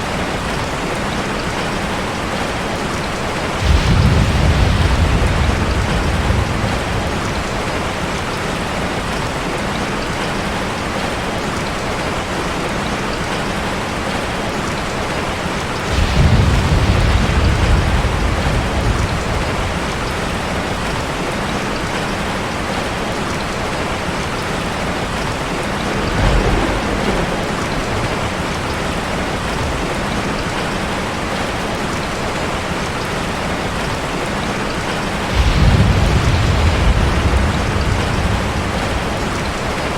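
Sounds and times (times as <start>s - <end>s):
waterfall rushing water: 0.0s - 39.9s
deep rumbles: 15.9s - 21.3s, 25.7s - 30.2s, 35.3s - 39.9s.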